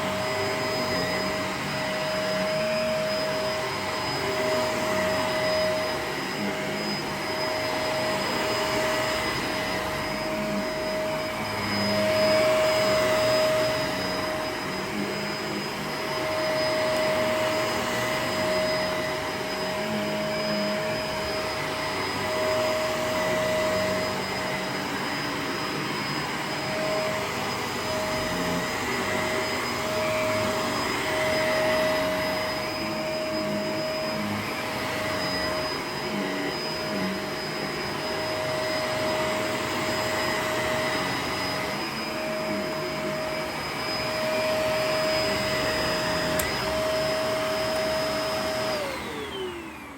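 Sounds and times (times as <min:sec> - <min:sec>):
vacuum cleaner motor whine: 0:00.0 - 0:49.9.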